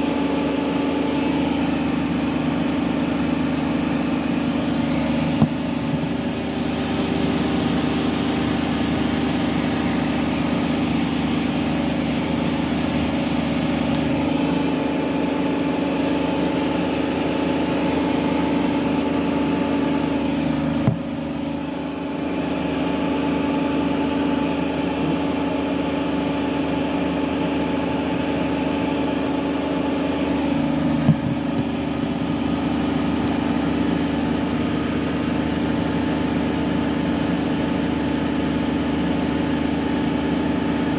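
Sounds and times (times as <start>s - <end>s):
washing machine spinning: 0.0s - 40.9s
knocks: 31.1s - 31.7s.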